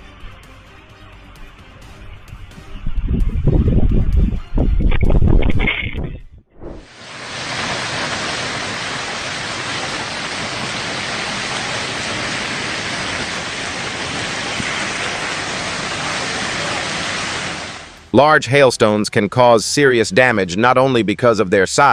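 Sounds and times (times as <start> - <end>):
heavy rain hissing: 6.8 - 18.1.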